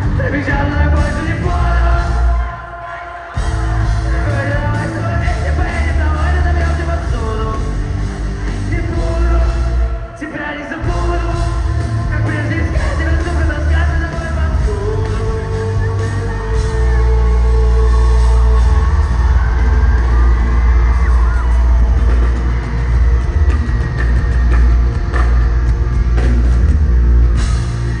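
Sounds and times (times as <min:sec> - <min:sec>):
live rock band playing: 0:00.0 - 0:02.5, 0:03.4 - 0:28.0
person singing: 0:00.0 - 0:20.5.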